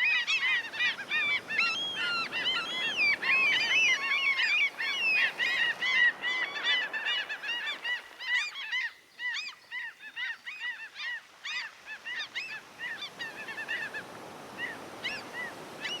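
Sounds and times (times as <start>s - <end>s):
gulls calling: 0.0s - 16.0s
sea noise: 0.0s - 16.0s.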